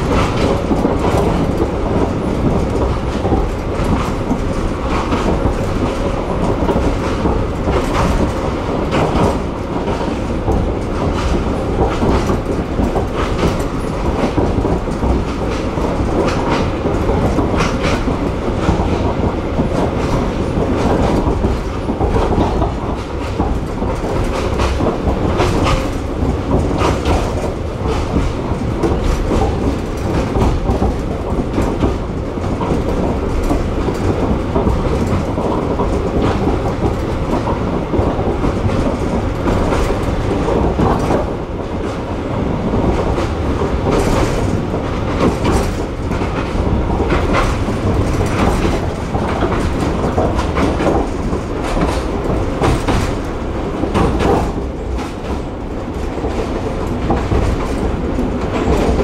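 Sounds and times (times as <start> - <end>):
train carriage rumbling: 0.0 - 59.0
wheels clacking over rail joints: 0.0 - 59.0.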